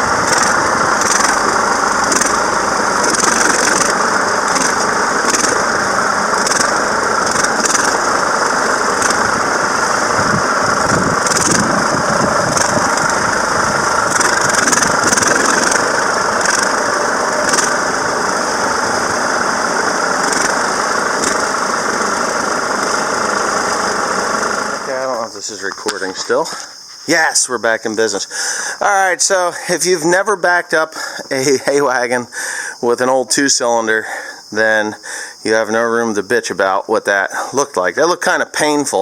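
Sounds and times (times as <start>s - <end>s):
tractor engine running: 0.0s - 39.0s.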